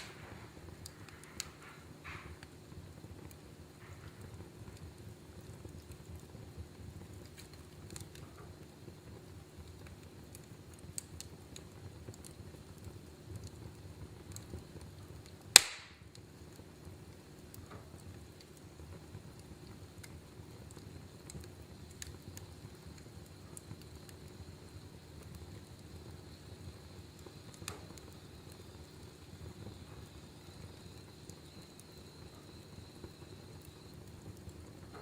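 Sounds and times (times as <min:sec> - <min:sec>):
loud sharp pop from fire: 0:00.0 - 0:02.6, 0:15.4 - 0:16.2, 0:27.2 - 0:28.9
wood fire crackling: 0:00.0 - 0:35.0.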